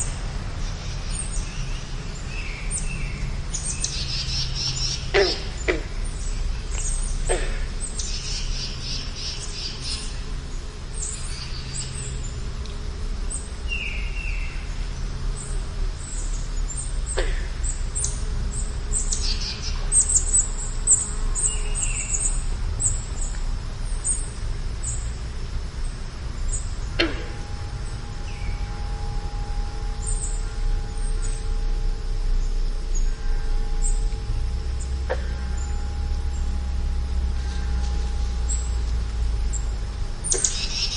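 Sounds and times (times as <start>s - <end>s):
birds chirping: 0.0s - 12.5s, 25.8s - 40.9s
steady low rumble: 0.0s - 40.9s
falling bird calls: 34.8s - 40.9s.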